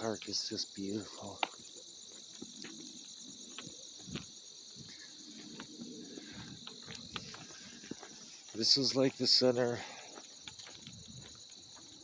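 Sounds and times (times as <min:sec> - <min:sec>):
crickets trilling: 0:00.0 - 0:12.0
footsteps in dry leaves: 0:05.1 - 0:12.0.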